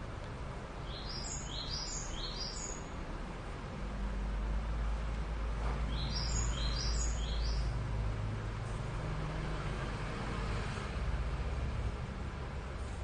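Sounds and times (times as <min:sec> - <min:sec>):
small bird chirping: 0:00.8 - 0:02.9, 0:05.9 - 0:07.8.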